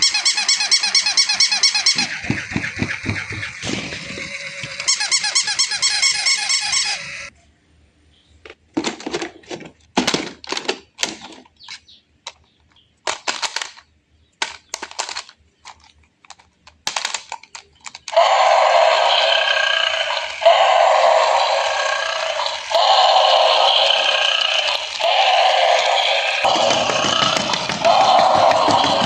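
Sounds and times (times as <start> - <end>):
high squeaky chirps: 0.0 - 7.3, 18.1 - 29.0
clicks and rattles: 8.8 - 18.2, 26.4 - 29.0.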